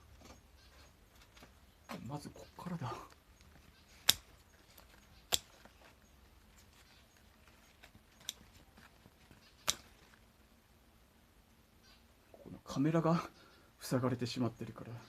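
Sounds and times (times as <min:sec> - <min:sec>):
garden shears snipping: 0:03.8 - 0:06.0, 0:07.7 - 0:08.7, 0:09.4 - 0:10.1.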